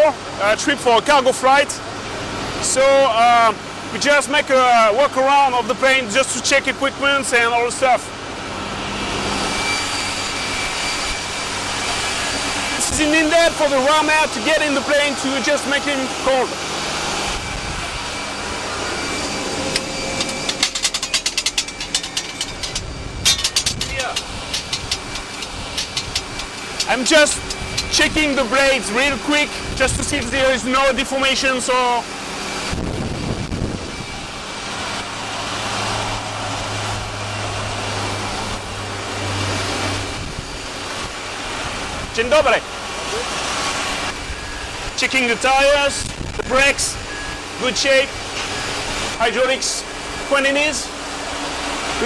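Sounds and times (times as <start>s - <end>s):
airport machinery rush: 0.1s - 52.0s
fan blades clanking metallically: 10.3s - 33.5s
low hum: 16.6s - 31.2s
steady rushing: 17.2s - 31.5s.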